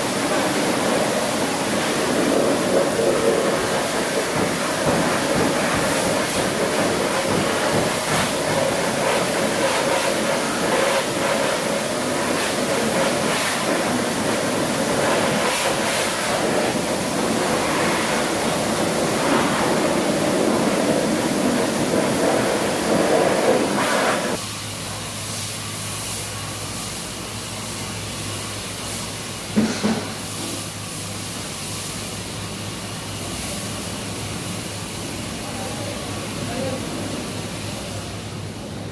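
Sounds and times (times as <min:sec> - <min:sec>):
steady hum: 0:00.0 - 0:38.9
water spraying onto car: 0:00.0 - 0:38.9.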